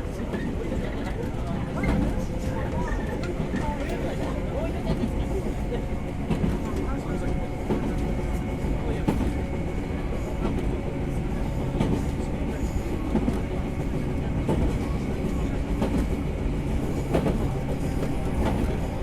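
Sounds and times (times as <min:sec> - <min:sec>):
train running gear hum: 0:00.0 - 0:19.0.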